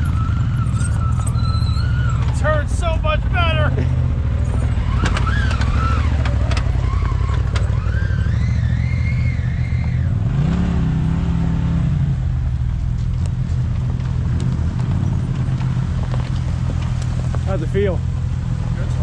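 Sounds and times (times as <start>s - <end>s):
wavering whine: 0.0s - 3.3s
off-road vehicle engine running: 0.0s - 19.0s.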